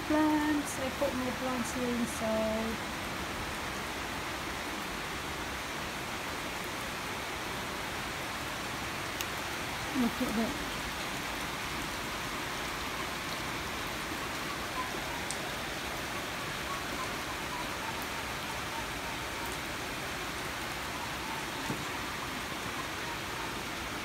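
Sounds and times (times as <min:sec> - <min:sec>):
heavy rain: 0:00.0 - 0:24.0.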